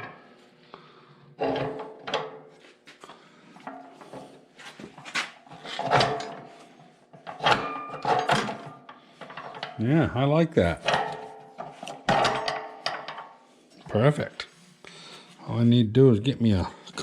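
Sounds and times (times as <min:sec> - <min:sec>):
metal clanks and knocks: 0:00.0 - 0:00.3, 0:01.4 - 0:02.5, 0:05.5 - 0:09.8, 0:10.8 - 0:13.4.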